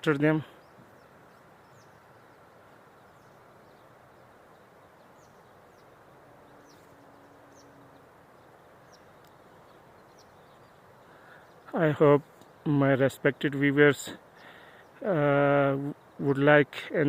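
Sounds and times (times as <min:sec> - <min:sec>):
steady low hiss: 0:00.0 - 0:17.0
small bird chirping: 0:00.1 - 0:12.7.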